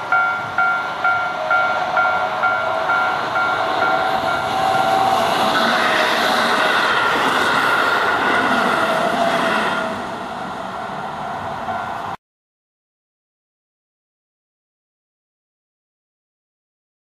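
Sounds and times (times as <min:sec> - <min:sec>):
level crossing bell clanging: 0:00.0 - 0:05.9
train wheels rushing on rails: 0:00.0 - 0:12.2.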